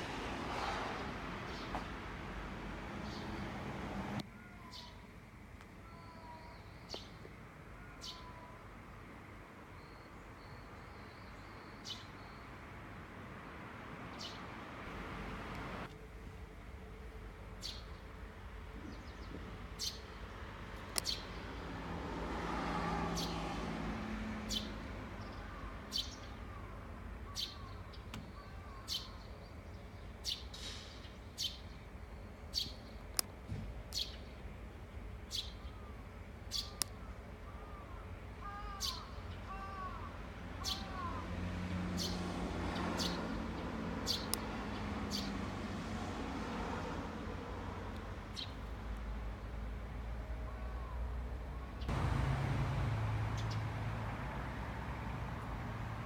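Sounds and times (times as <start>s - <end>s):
vehicle passing with low hum: 0.0s - 4.2s, 12.8s - 15.9s, 20.2s - 27.1s, 40.1s - 56.0s
birds chirping: 0.3s - 5.0s, 51.8s - 54.1s.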